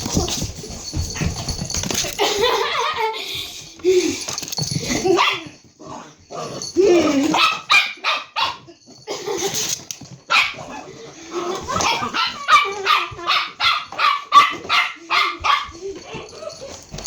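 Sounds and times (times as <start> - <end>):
dog barking: 5.2 - 5.5, 7.4 - 8.7, 10.3 - 10.8, 11.8 - 15.8.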